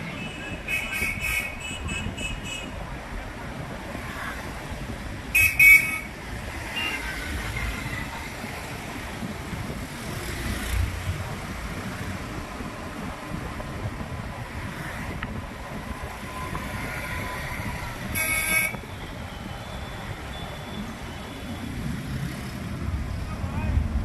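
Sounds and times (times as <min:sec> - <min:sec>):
road and wind rumble: 0:00.0 - 0:24.0
vehicle horn toots: 0:00.1 - 0:02.7, 0:05.4 - 0:06.1, 0:18.1 - 0:18.8.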